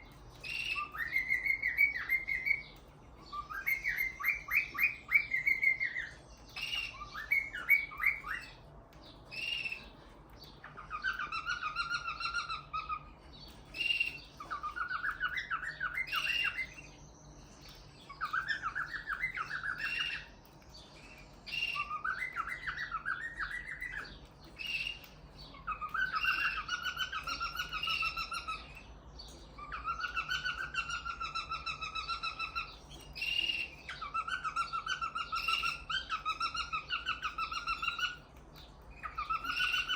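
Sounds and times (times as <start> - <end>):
cockatiel singing: 0.0 - 39.9.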